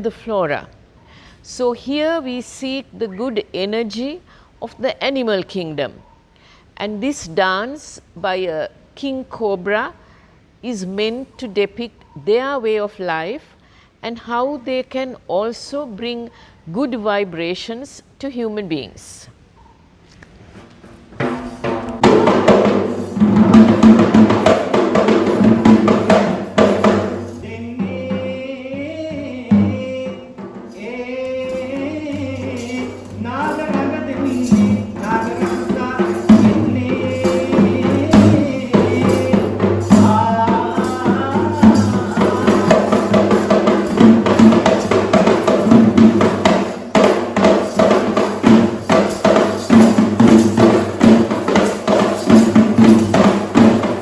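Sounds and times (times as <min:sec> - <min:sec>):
drum ensemble playing fast rhythm: 0:21.2 - 0:28.2, 0:29.5 - 0:30.9, 0:31.5 - 0:54.0.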